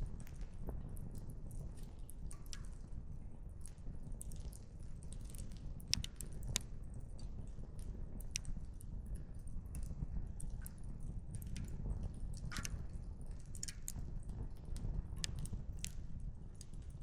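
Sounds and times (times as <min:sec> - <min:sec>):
wood fire crackling: 0:03.4 - 0:12.4, 0:13.2 - 0:17.0.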